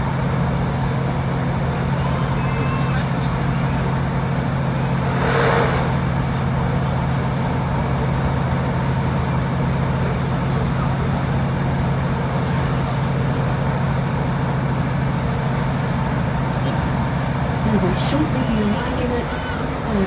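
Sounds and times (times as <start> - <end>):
diesel engine droning: 0.0 - 20.0
wheel and rail noise: 0.0 - 20.0
brief loud rush: 5.0 - 6.2.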